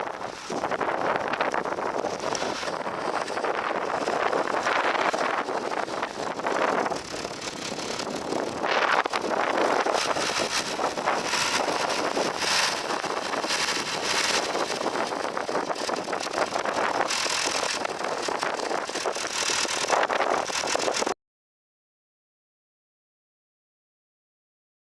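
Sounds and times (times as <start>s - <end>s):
tractor diesel engine running: 0.0s - 21.2s
wind buffeting microphone: 0.0s - 21.2s.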